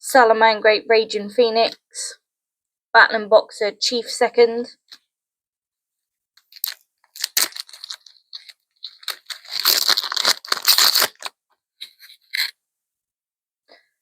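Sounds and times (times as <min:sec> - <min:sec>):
foil wrapper tearing and crinkling: 0:06.4 - 0:11.4.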